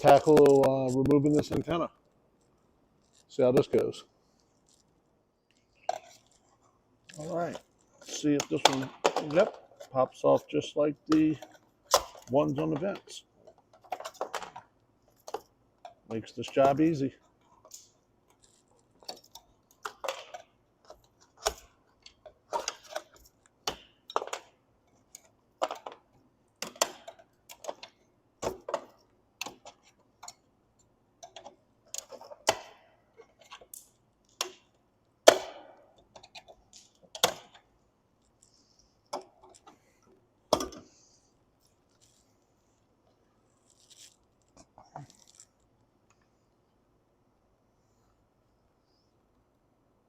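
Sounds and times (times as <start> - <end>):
tools clicking and knocking: 5.7 - 9.9, 11.1 - 41.0.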